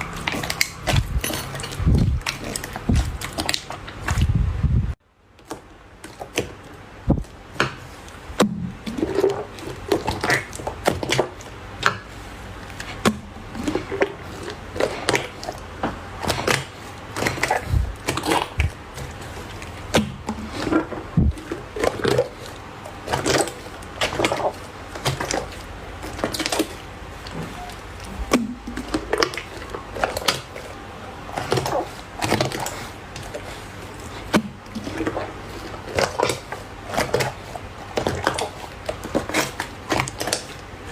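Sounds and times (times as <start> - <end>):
slime squelching and popping: 0.0 - 4.4, 5.4 - 40.8.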